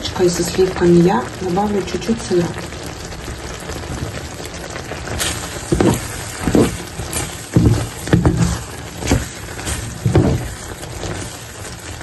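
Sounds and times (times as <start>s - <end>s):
food simmering: 0.0s - 12.0s
utensil stirring in a pan: 5.0s - 12.0s.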